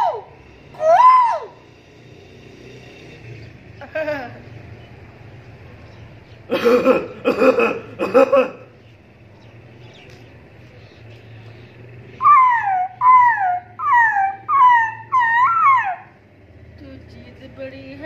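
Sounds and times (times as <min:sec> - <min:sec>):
person making whining yelps: 0:00.0 - 0:01.6, 0:12.2 - 0:16.2.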